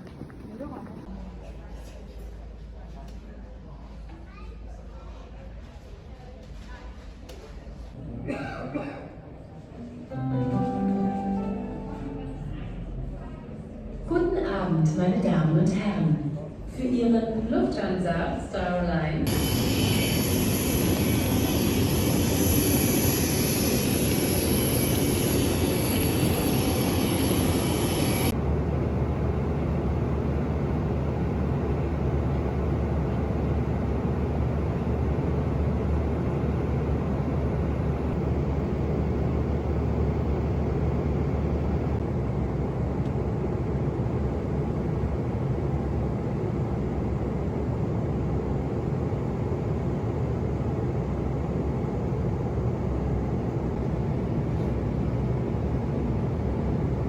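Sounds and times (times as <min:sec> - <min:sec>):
airliner cabin engine noise: 0:00.0 - 0:01.1, 0:18.8 - 0:57.0.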